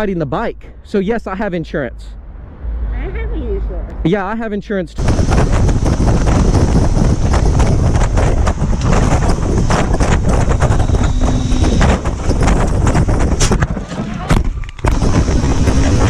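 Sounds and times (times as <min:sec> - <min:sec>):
wind buffeting microphone: 0:05.0 - 0:16.0.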